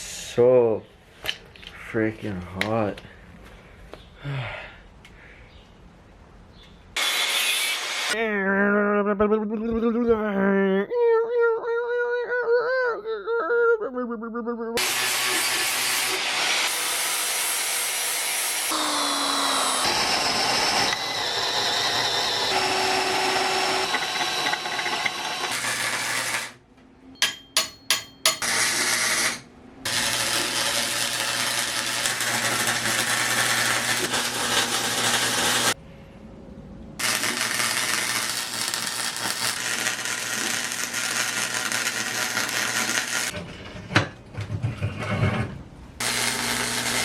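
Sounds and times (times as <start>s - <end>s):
power tools grinding metal: 7.0s - 8.2s, 14.8s - 26.6s, 27.6s - 35.8s, 37.0s - 43.4s, 46.0s - 47.0s.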